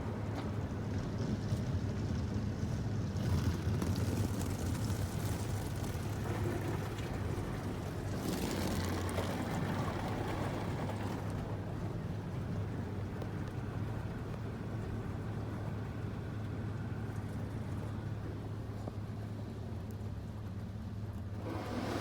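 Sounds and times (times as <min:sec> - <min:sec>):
car wash machine hum: 0:21.4 - 0:22.0.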